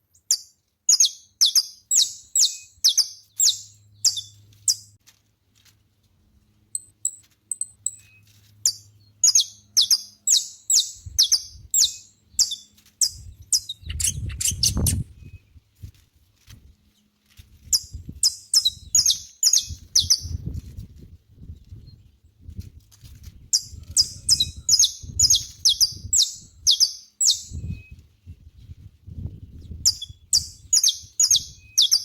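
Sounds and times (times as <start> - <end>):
finch singing: 0.2 - 4.9, 7.5 - 15.5, 17.7 - 20.4, 23.4 - 28.0, 29.4 - 32.0.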